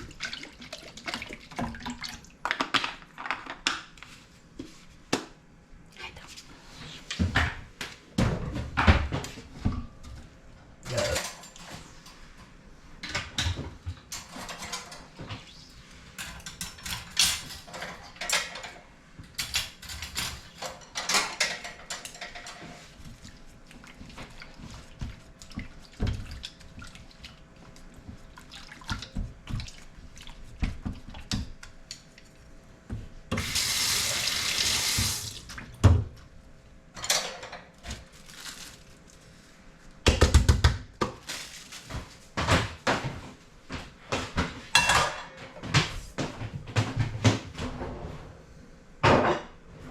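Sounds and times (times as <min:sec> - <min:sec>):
dishes knocking and clinking: 0:44.2 - 0:47.9, 0:49.0 - 0:49.6.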